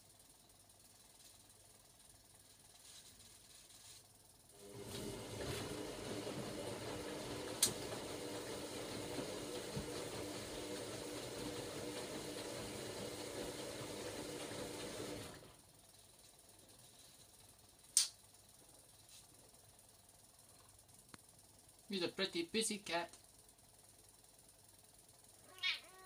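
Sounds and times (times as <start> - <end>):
washing machine motor hum: 4.2 - 26.0
sharp click: 18.0 - 18.2.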